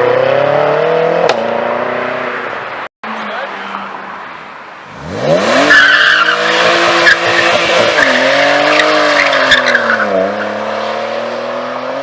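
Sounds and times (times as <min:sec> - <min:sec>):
car engine revving: 0:04.8 - 0:12.0
tires squealing: 0:05.0 - 0:11.8.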